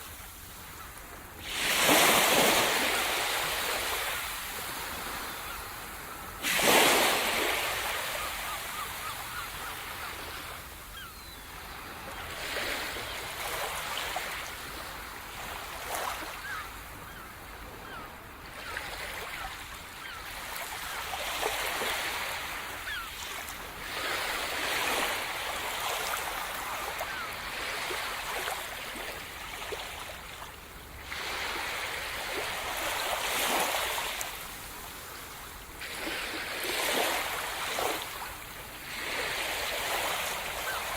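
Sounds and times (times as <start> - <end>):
waves breaking: 0.0 - 16.6, 31.0 - 40.9.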